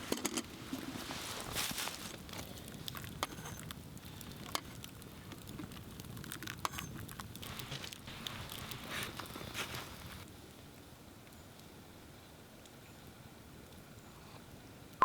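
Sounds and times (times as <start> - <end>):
campfire crackling: 0.0 - 15.0
sharp pops of fire: 2.1 - 10.2.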